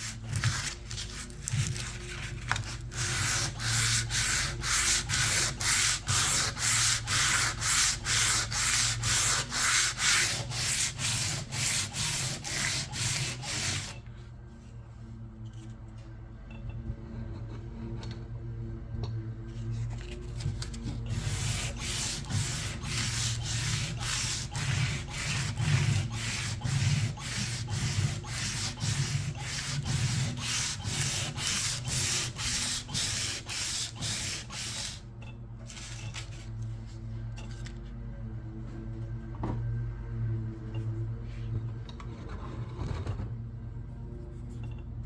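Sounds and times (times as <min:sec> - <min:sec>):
sandpaper rubbing: 0:00.0 - 0:14.0, 0:21.1 - 0:35.0.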